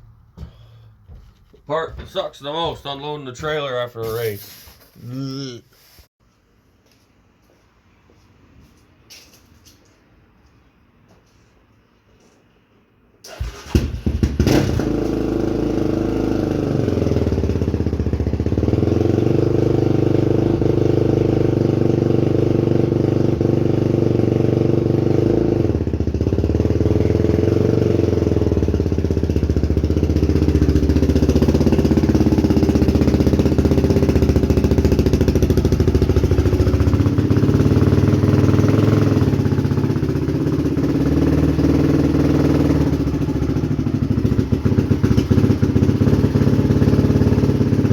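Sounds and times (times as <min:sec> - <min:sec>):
quad bike engine revving: 0:13.3 - 0:47.9.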